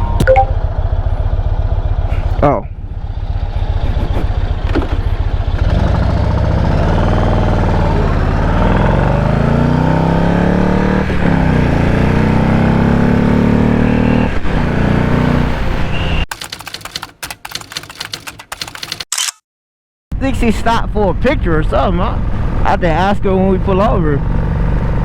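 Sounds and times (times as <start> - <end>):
motorcycle engine accelerating: 0.0 - 15.8
rapid clicking: 16.3 - 19.1.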